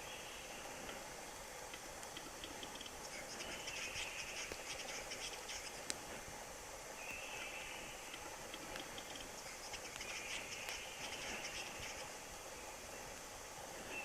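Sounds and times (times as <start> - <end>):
bird dry clicks and scraping: 1.7 - 6.1, 8.1 - 11.7.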